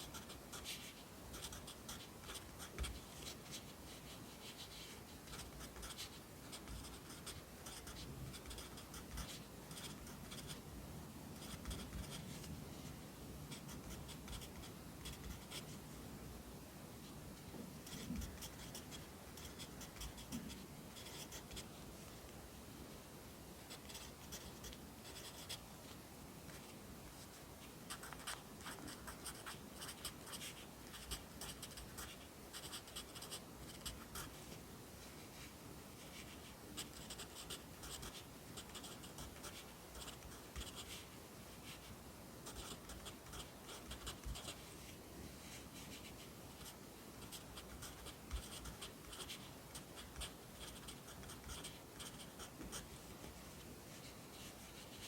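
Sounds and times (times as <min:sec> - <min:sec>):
pencil scratching on paper: 0:00.0 - 0:10.6, 0:11.4 - 0:12.5, 0:13.5 - 0:15.8, 0:17.8 - 0:21.7, 0:23.7 - 0:25.6, 0:27.9 - 0:34.4, 0:36.0 - 0:44.6, 0:45.8 - 0:52.9.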